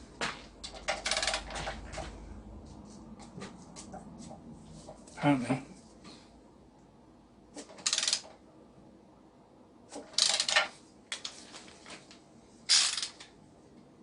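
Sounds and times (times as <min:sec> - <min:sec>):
torque wrench ratchet clicking: 0:07.8 - 0:08.3, 0:10.2 - 0:10.6, 0:12.7 - 0:13.2.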